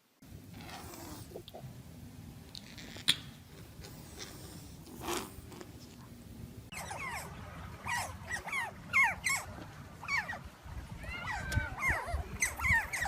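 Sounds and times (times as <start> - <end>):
young animal squeaking: 6.7 - 10.4, 11.0 - 13.0.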